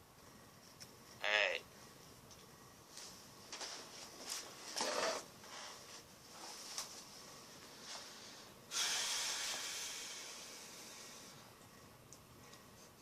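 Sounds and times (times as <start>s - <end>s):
breathy rush of noise: 7.4s - 11.6s
sudden hiss: 8.7s - 11.4s.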